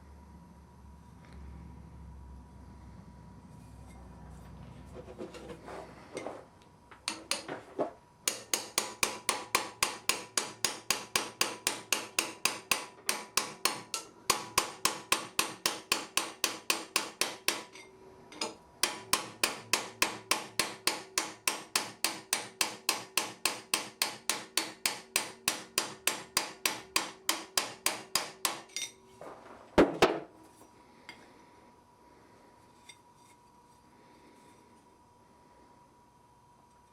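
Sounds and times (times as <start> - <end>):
hammer striking steel on anvil: 7.0 - 7.6, 8.3 - 29.0.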